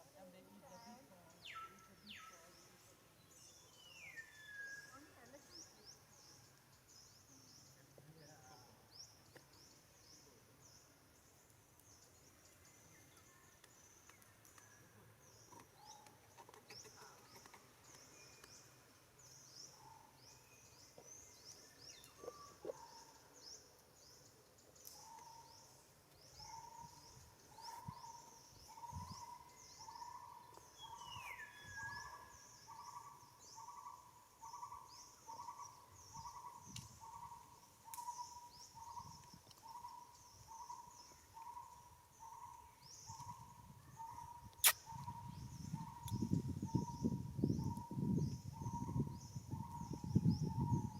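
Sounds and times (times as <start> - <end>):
dense high chirping: 44.6 - 45.2.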